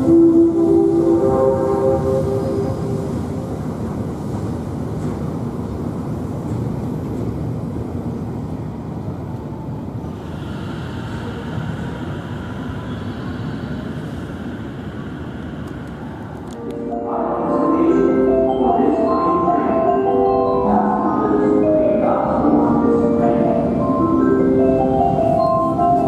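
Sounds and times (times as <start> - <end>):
train wheels rumbling on rails: 0.0 - 16.8.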